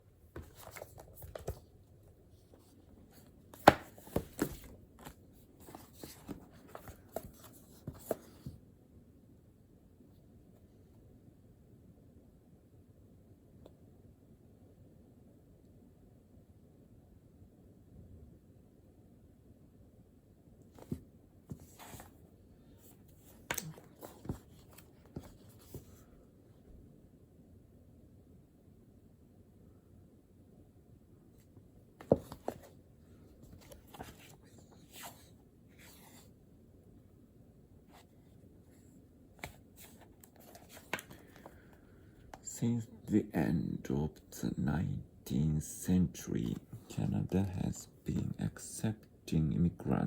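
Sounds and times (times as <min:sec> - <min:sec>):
paper rustling: 0:02.4 - 0:08.5, 0:22.8 - 0:26.0, 0:39.4 - 0:41.8.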